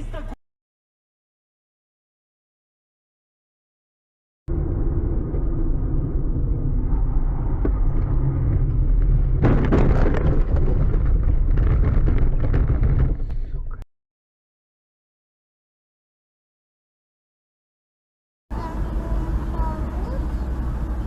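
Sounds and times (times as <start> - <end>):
moving car rumble: 4.5 - 13.8, 18.5 - 21.0
crackling rattling and scraping: 5.1 - 13.4
car crash crunch: 7.6 - 13.3.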